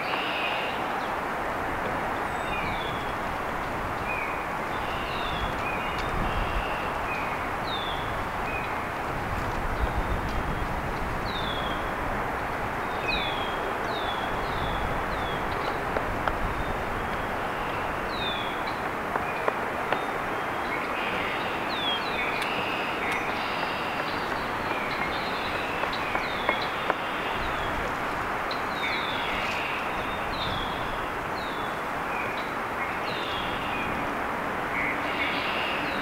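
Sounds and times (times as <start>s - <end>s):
rushing background noise: 0.0s - 36.0s
small birds chirping: 12.8s - 27.8s.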